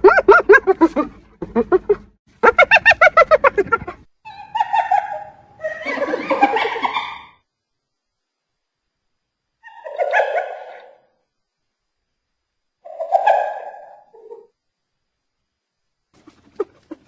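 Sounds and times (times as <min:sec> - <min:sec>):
hyena giggling: 0:00.0 - 0:07.4
hyena rasping squeals: 0:09.6 - 0:11.1.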